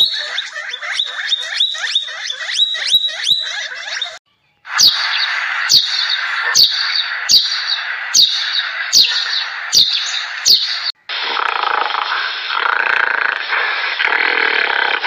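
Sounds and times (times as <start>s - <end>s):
bird chirping: 0.0s - 11.0s
steady hiss: 5.3s - 15.0s.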